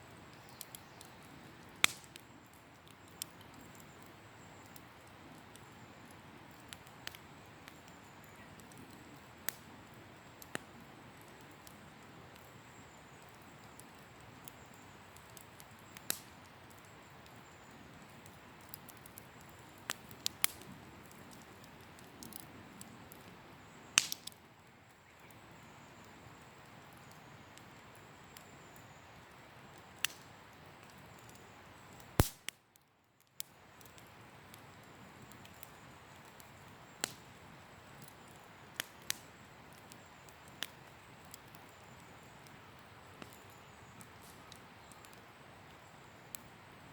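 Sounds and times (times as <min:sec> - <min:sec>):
campfire crackling and popping: 0:00.0 - 0:46.9.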